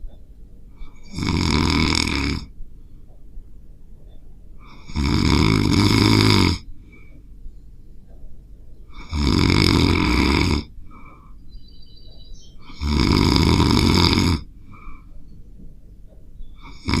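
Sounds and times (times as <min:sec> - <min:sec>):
dog snoring loudly: 0:01.0 - 0:02.5, 0:04.7 - 0:06.7, 0:08.9 - 0:10.7, 0:12.6 - 0:14.5, 0:16.6 - 0:17.0.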